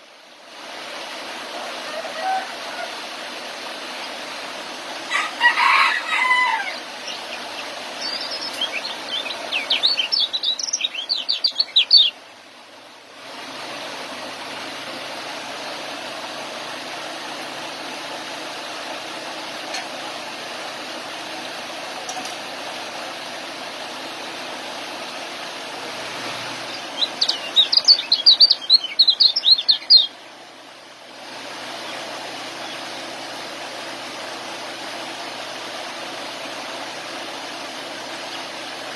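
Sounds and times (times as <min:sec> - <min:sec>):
steady background hiss: 0:00.0 - 0:38.9
songbird twittering chirps: 0:06.0 - 0:12.2, 0:26.0 - 0:30.3.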